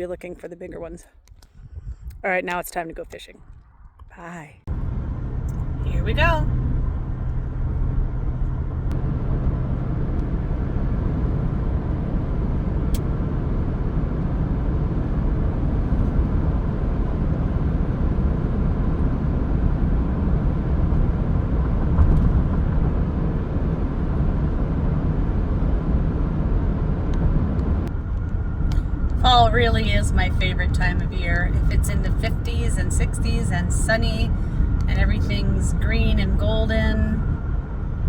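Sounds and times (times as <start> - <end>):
vehicle driving low rumble: 0.0 - 38.0.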